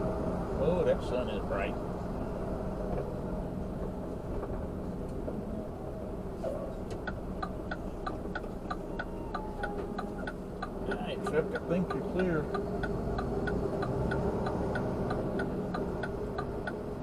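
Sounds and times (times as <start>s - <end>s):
truck engine rumbling: 0.0s - 17.0s
turn signal clicking: 6.8s - 17.0s.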